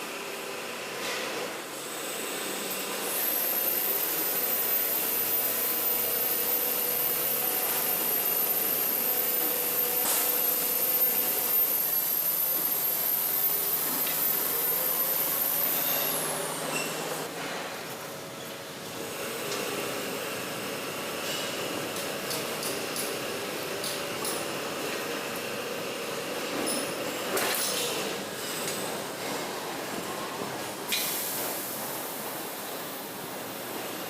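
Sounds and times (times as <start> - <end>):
power tool high-pitched whine: 0.1 - 17.3.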